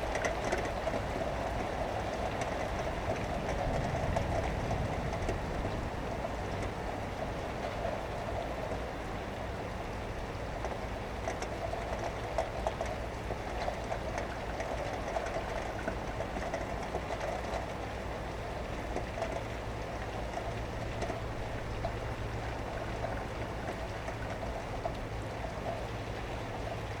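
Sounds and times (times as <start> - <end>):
distant traffic hum: 0.0 - 27.0
steady rain: 0.0 - 27.0.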